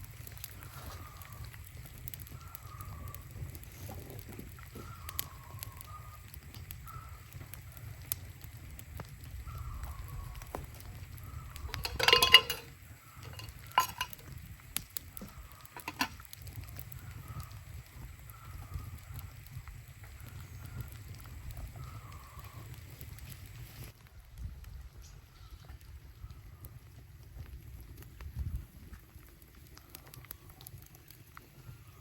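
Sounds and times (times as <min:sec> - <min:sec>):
metal cookware clattering: 0:11.7 - 0:14.2, 0:15.8 - 0:16.2.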